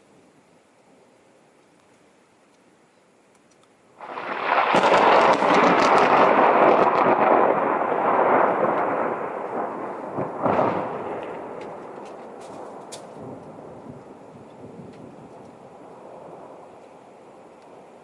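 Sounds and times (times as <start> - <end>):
thunder crack and rumble: 4.0 - 16.8.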